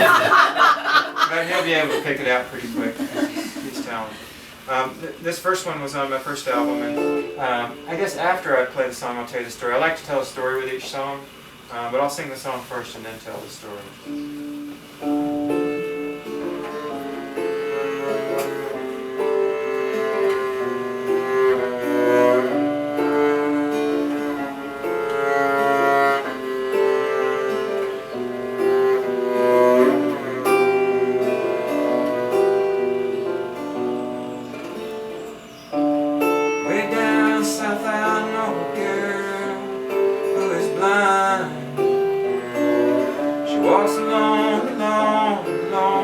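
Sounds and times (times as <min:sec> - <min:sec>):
acoustic guitar: 0:00.0 - 0:46.0
double bass: 0:14.2 - 0:46.0.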